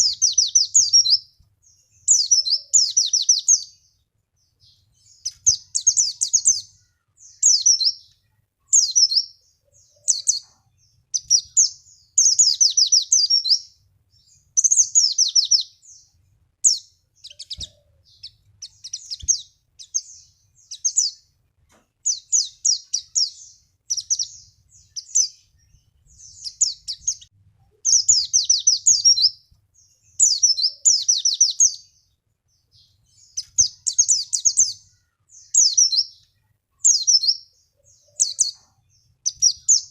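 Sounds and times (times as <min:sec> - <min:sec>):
bird warbling song: 0:00.0 - 0:39.9.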